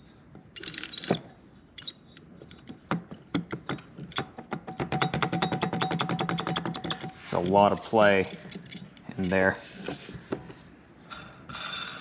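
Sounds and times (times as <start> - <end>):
metal parts clicking and knocking: 0.4 - 7.6, 8.2 - 9.4.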